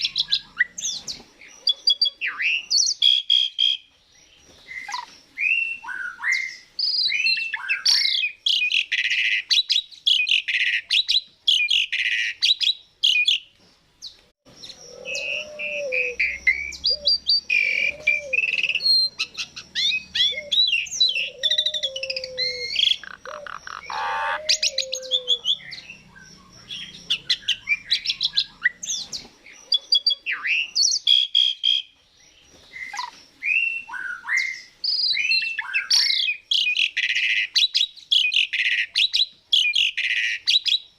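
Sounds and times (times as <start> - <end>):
lower repeated bird calls: 0.0 - 40.9
starling singing: 14.5 - 31.9.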